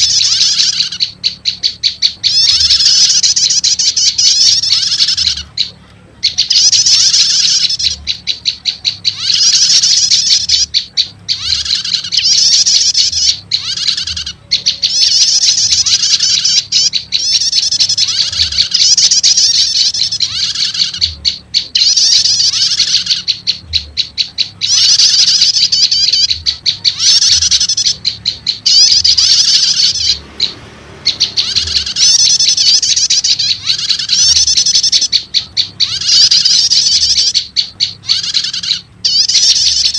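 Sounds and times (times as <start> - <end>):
bird chattering trills: 0.0 - 39.9.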